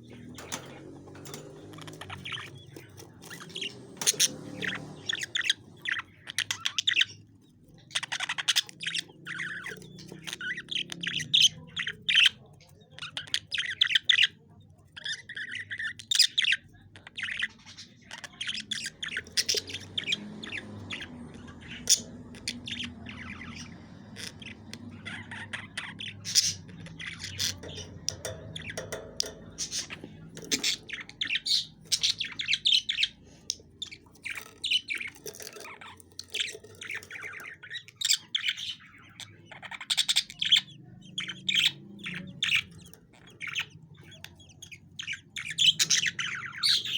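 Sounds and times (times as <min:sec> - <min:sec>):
budgerigars chirping and chattering: 0:00.0 - 0:46.9.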